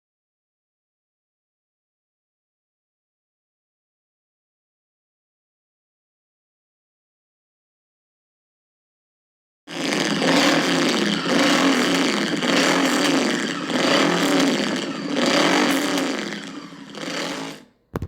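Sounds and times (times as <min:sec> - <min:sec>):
motorcycle engine revving: 0:09.7 - 0:18.0.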